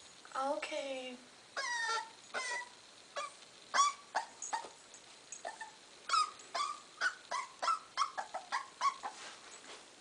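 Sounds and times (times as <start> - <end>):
puppy whimpering and yelping: 1.6 - 4.8, 5.4 - 9.2.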